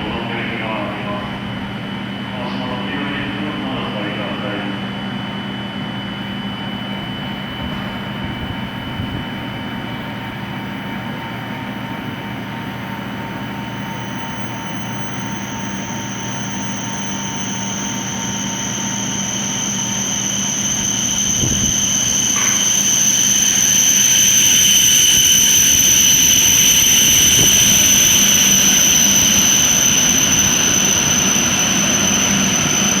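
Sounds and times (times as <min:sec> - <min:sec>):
train high-pitched whine: 0:00.0 - 0:33.0
low hum: 0:13.0 - 0:33.0.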